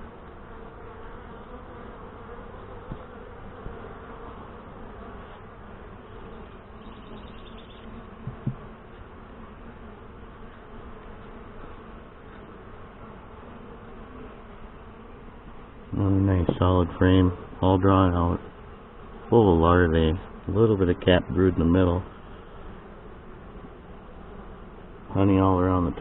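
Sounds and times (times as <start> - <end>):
bees buzzing: 0.0 - 26.0
light taps on hive frames: 2.7 - 3.9, 7.1 - 9.1, 16.4 - 16.8.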